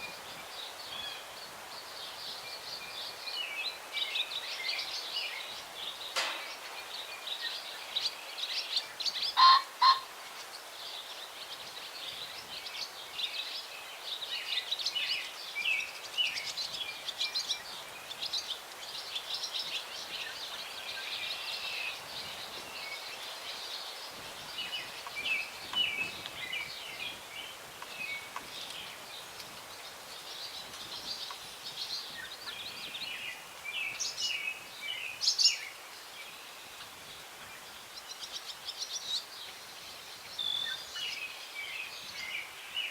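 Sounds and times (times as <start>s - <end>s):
songbirds chirping and singing: 0.0s - 42.9s
pheasant crowing: 9.4s - 10.1s.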